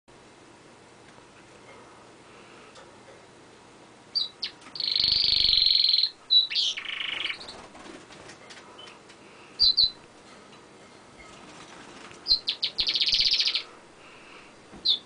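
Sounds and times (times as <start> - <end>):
canary singing trills: 4.1 - 7.7, 9.6 - 10.1, 12.2 - 13.8.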